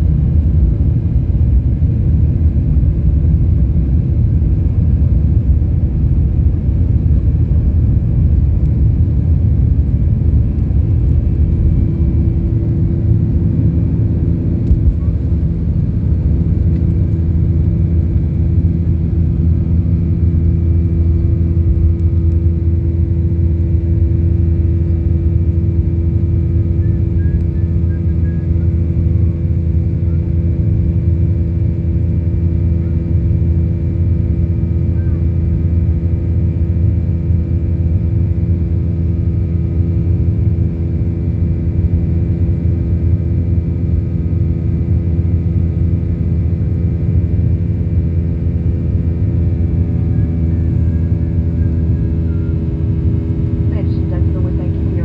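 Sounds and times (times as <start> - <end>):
low hums: 0.0 - 30.8, 46.0 - 55.0
jet engines rumbling in cabin: 0.0 - 55.0.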